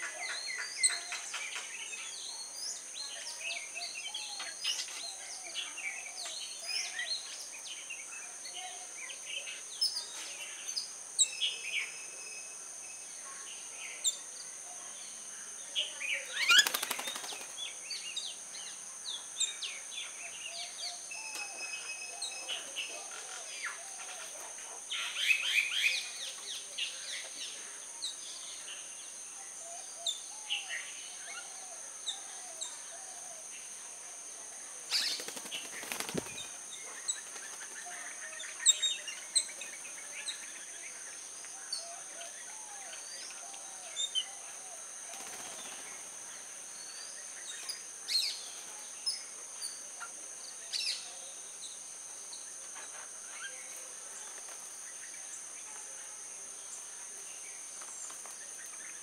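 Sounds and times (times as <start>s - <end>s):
birds chirping and calling: 16.0s - 17.6s
rapid wing-flapping: 16.5s - 17.6s, 35.0s - 36.6s.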